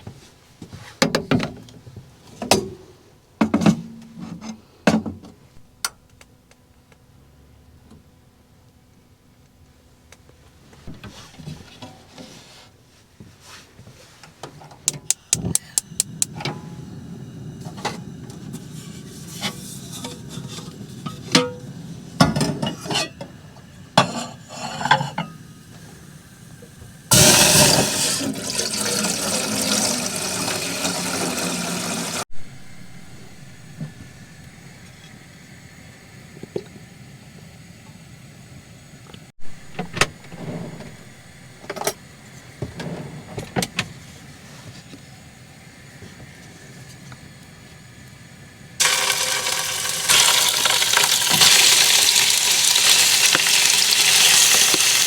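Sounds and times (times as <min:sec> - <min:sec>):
rushing water pouring: 0:27.1 - 0:32.2, 0:48.8 - 0:55.0.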